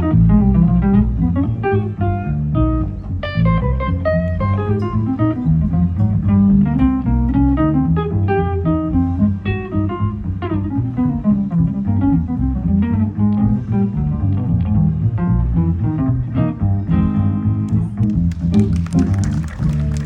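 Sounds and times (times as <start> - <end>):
double bass plucked: 0.0 - 20.0
jazz guitar playing: 0.0 - 20.0.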